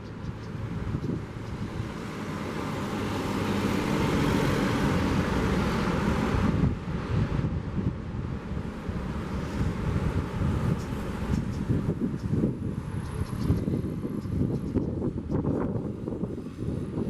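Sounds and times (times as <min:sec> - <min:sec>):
wind buffeting microphone: 0:00.0 - 0:17.0
car driving past: 0:01.4 - 0:07.1.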